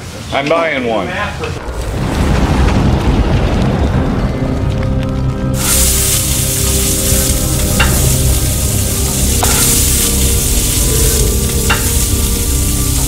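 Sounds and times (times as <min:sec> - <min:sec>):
food sizzling on griddle: 0:05.6 - 0:13.0.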